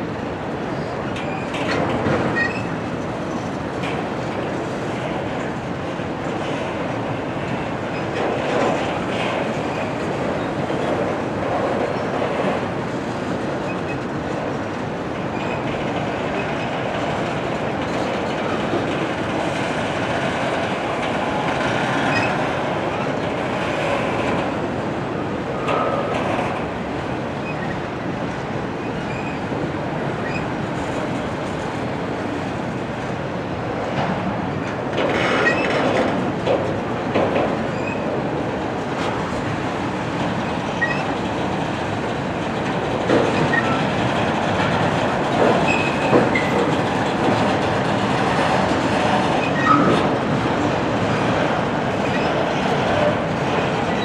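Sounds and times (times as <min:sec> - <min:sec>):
railroad cars rolling on rails: 0:00.0 - 0:54.0
high wheel squeals: 0:02.4 - 0:02.7, 0:49.4 - 0:49.9.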